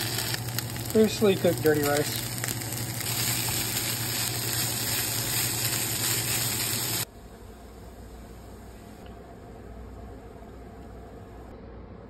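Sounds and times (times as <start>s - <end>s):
food sizzling in a skillet: 0.0s - 7.1s.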